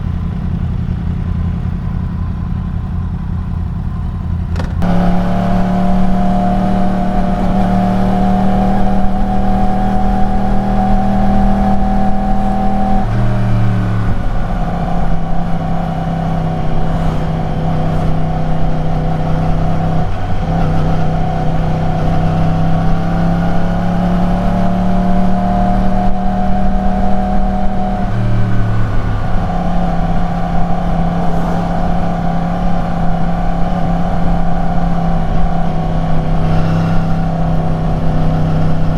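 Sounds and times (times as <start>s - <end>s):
motorcycle engine and exhaust: 0.0s - 38.9s.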